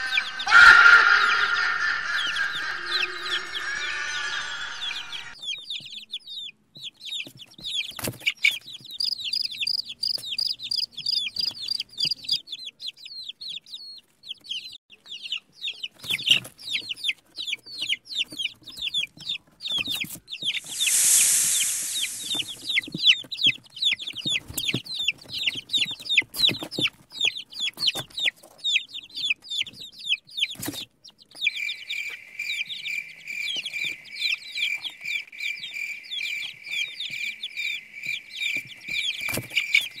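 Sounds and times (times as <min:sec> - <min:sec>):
baby chicks peeping: 0:04.9 - 0:40.0
loud hissing whoosh: 0:20.6 - 0:22.8.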